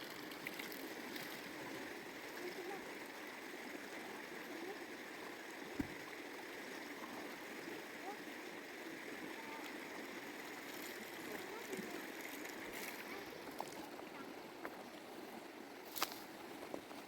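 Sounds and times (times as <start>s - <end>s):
stream water running: 0.0s - 17.0s
dull thump: 5.8s - 6.0s.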